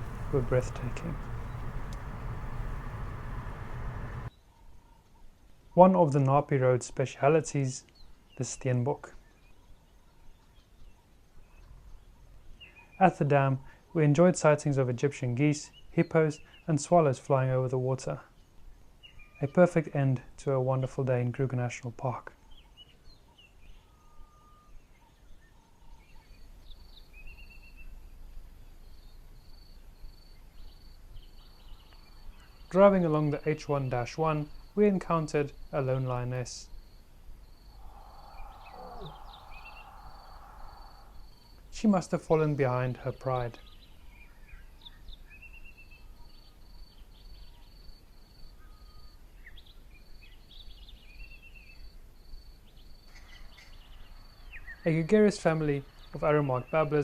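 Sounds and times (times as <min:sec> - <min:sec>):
low background rumble: 0:00.0 - 0:04.3, 0:37.4 - 0:42.1
birds whistling and chirping: 0:37.7 - 0:41.4
bird trill: 0:37.7 - 0:41.5.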